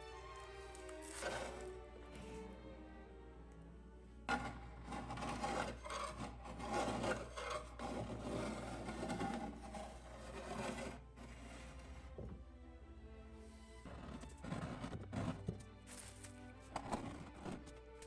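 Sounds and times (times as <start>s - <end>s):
hand scraping a painted drawer: 0.8s - 1.7s, 4.3s - 12.4s, 13.8s - 17.7s.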